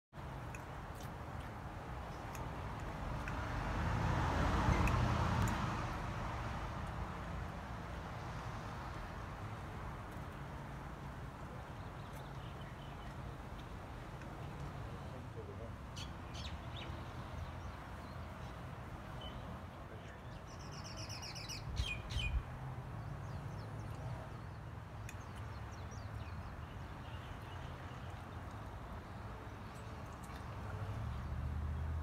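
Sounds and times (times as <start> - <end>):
small birds chirping: 11.4 - 31.3.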